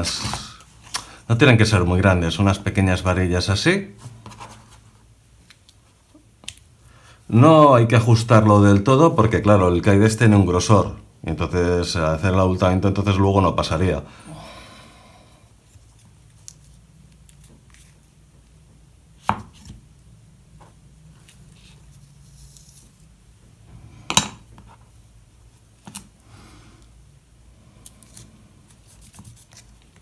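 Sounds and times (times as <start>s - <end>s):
low steady hum: 0.0s - 30.0s
parts knocking on workbench: 24.1s - 24.4s.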